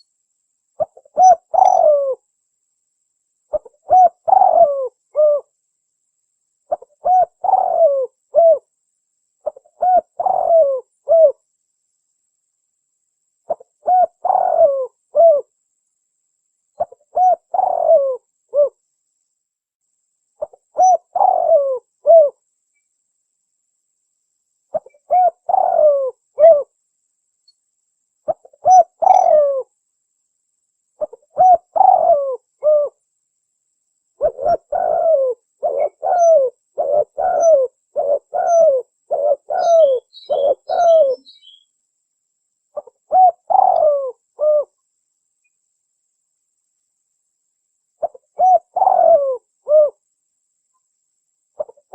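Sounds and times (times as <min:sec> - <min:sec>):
dove cooing: 0:00.8 - 0:02.2, 0:03.5 - 0:05.5, 0:06.7 - 0:08.7, 0:09.4 - 0:11.4, 0:13.5 - 0:15.5, 0:16.8 - 0:18.8, 0:20.4 - 0:22.4, 0:24.7 - 0:26.7, 0:28.3 - 0:29.7, 0:31.0 - 0:33.0, 0:34.2 - 0:41.6, 0:42.8 - 0:44.8, 0:48.0 - 0:50.0, 0:51.6 - 0:51.9.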